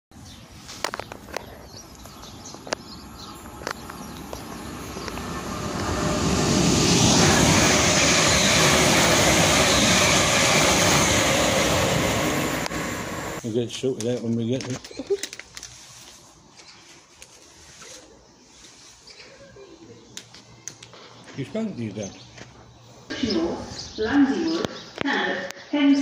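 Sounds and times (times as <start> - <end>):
train rushing on rails: 0.5 - 14.0.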